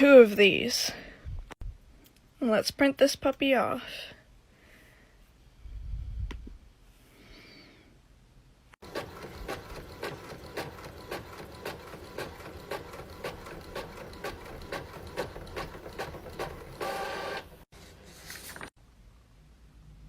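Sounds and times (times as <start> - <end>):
printer clicking: 8.8 - 17.6.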